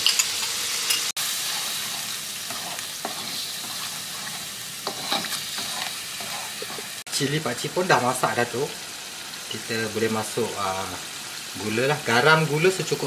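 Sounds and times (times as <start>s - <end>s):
spice paste frying in wok: 0.0s - 13.0s
spatula scraping pan: 0.1s - 7.0s.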